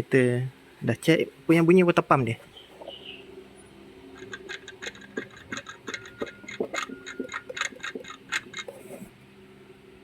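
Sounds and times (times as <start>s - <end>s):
clicking knocking rattle: 4.2s - 8.8s.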